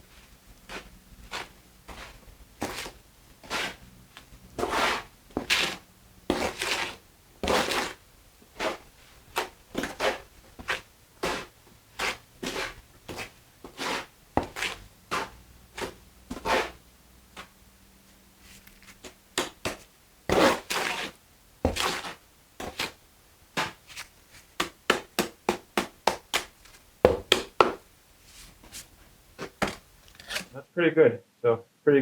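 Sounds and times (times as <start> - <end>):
trowel scraping wet mortar: 0.7 - 3.8, 4.6 - 8.0, 9.4 - 16.8, 20.3 - 23.0, 29.4 - 30.6.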